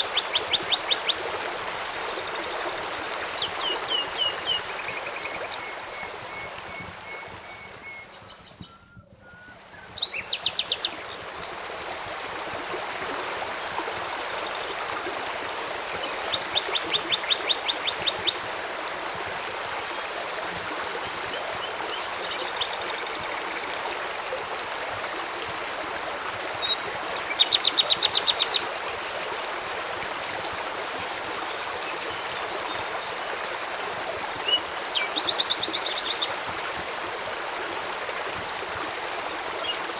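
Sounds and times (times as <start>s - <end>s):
flowing stream: 0.0s - 8.7s, 9.3s - 39.9s
songbirds calling: 0.0s - 11.6s, 13.9s - 18.5s, 26.6s - 28.8s, 34.0s - 39.9s.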